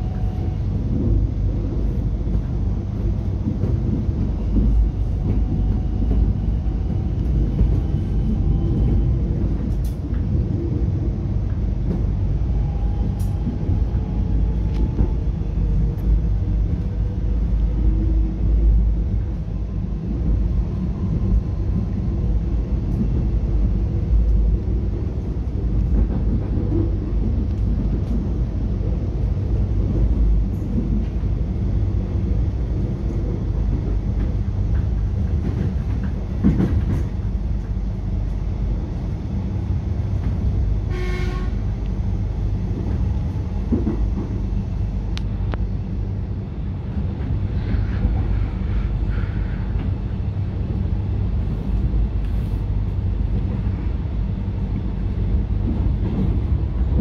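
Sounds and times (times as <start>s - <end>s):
train rumble and rail noise: 0.0s - 57.0s
short pitched train toot: 40.9s - 41.6s.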